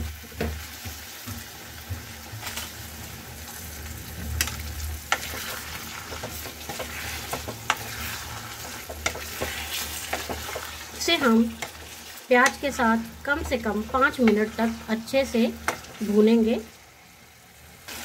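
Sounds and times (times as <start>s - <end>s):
chicken sizzling in a pan: 0.0s - 18.0s.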